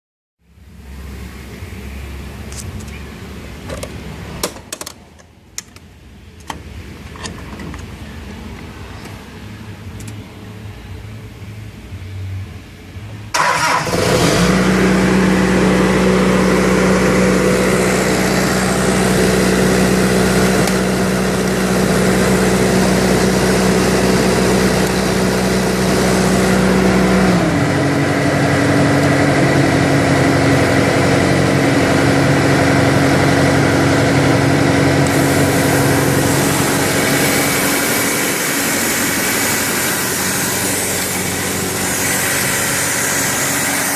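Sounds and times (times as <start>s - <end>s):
diesel engine running: 6.7s - 43.9s
hiss: 35.1s - 43.9s.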